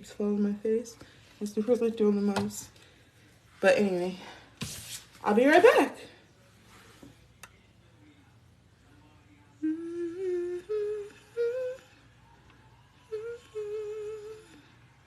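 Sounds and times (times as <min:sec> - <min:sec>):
woman humming a tune: 0:09.6 - 0:12.1, 0:13.0 - 0:14.8.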